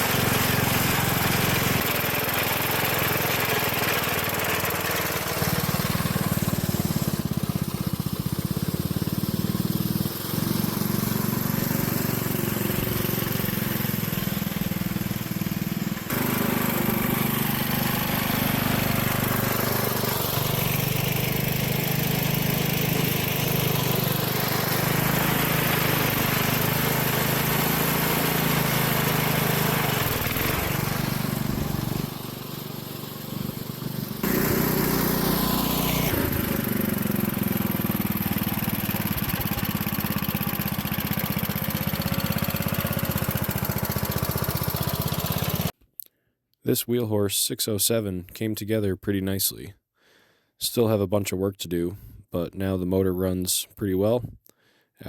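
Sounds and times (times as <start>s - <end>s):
garden tractor engine running: 0.0s - 45.8s.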